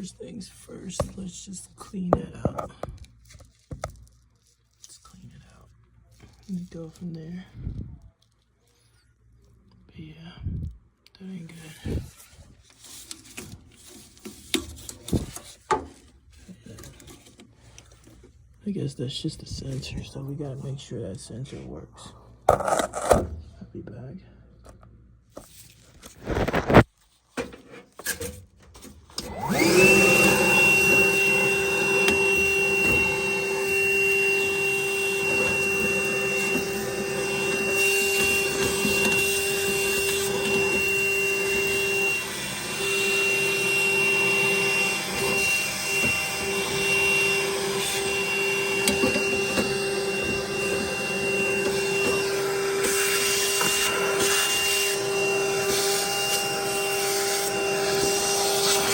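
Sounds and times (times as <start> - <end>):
vacuum cleaner whining: 0.0 - 1.5, 26.1 - 26.9, 28.8 - 58.9.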